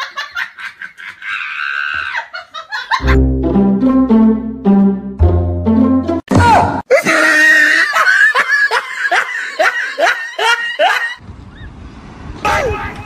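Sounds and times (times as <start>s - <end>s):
person laughing: 2.2s - 3.3s, 6.9s - 11.2s
music: 3.0s - 6.3s.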